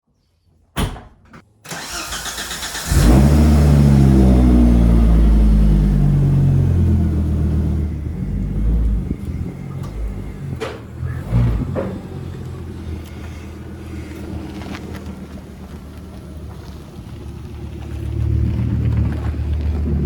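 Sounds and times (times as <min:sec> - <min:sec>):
car starter cranking: 0:01.7 - 0:16.6
car engine idling: 0:01.7 - 0:20.0.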